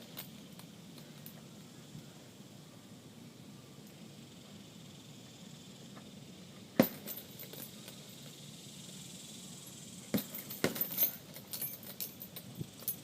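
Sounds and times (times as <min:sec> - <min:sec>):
gloved punches on heavy bag: 0:06.8 - 0:07.1, 0:10.1 - 0:11.0
chain rattling: 0:06.8 - 0:08.3, 0:10.1 - 0:13.0.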